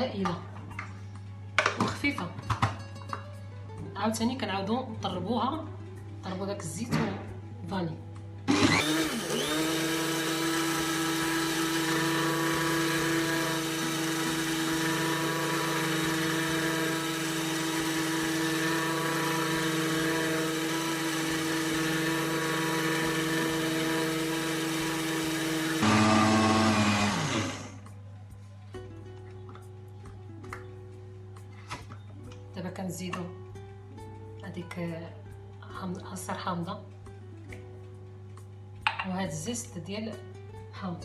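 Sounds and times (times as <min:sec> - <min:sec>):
electric mixer whining: 0:08.5 - 0:27.8.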